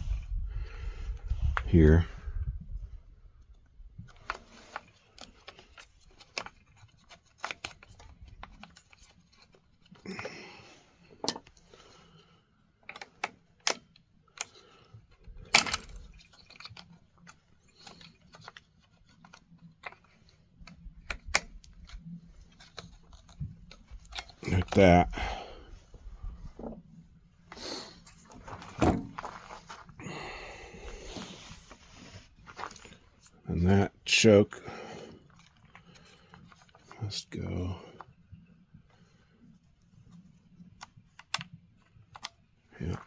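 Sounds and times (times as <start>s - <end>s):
small parts clicking and knocking: 3.5s - 10.4s, 11.1s - 11.7s, 12.8s - 25.2s, 40.1s - 43.0s.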